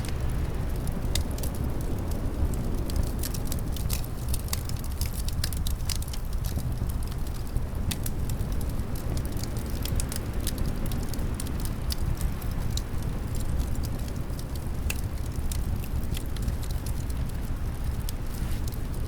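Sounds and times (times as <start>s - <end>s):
low rumble of wind: 0.0s - 19.0s
wood fire crackling: 0.0s - 19.0s.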